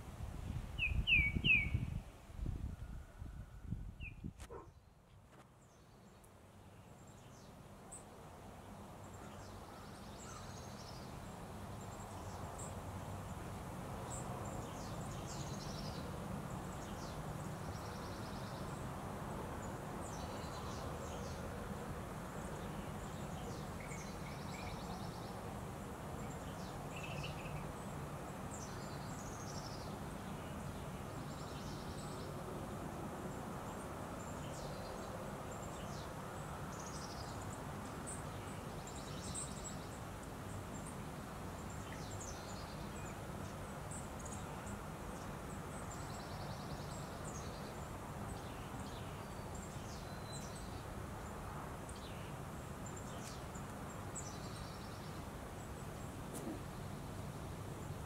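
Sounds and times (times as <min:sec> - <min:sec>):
small birds chirping: 0:40.6 - 0:57.0.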